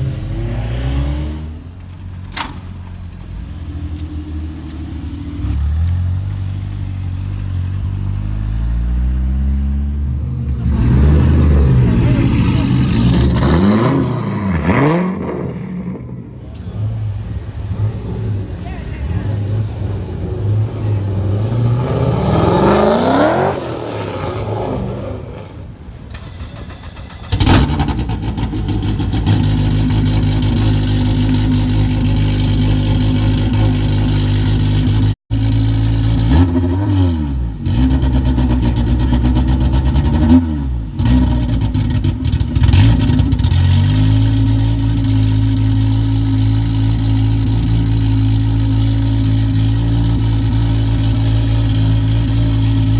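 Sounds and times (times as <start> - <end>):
car engine revving: 0.0 - 2.0, 3.0 - 52.9
engine idling: 25.9 - 36.3, 40.8 - 52.9.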